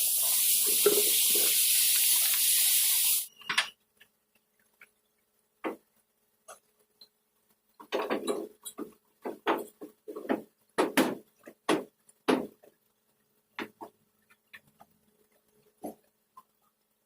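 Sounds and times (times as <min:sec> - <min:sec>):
compressed air hissing: 0:00.0 - 0:03.3
clinks and knocks: 0:07.8 - 0:12.4
knocks and clatters: 0:07.8 - 0:12.8.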